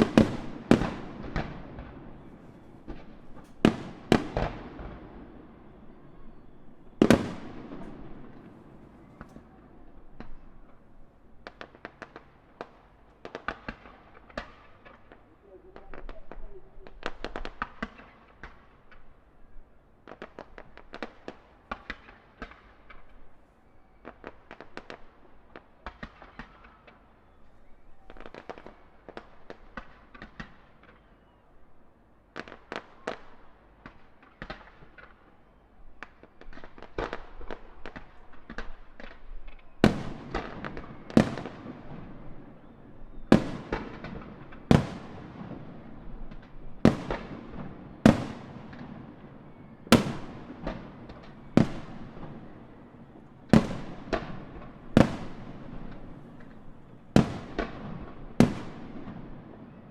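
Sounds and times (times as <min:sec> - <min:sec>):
fireworks booms echoing: 0:00.0 - 0:18.7, 0:36.6 - 0:59.8
distant fireworks crackling and banging: 0:00.0 - 0:19.3, 0:20.0 - 0:31.4, 0:32.3 - 0:59.9.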